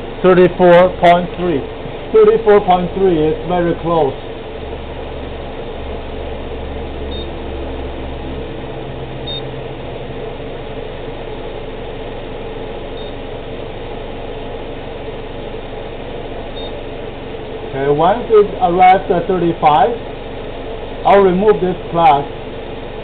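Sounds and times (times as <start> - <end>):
car engine idling: 0.0 - 23.0
faint high beeps: 7.1 - 7.3, 9.2 - 9.5, 13.0 - 13.2, 16.6 - 16.8.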